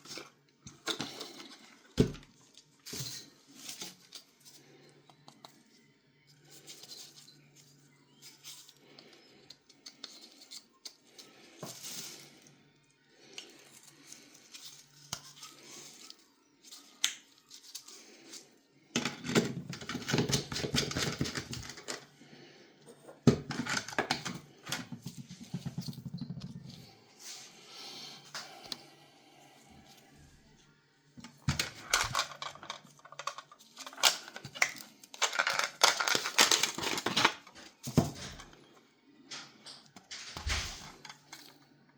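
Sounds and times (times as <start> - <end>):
plastic bottle clicks and scrapes: 31.2 - 38.6.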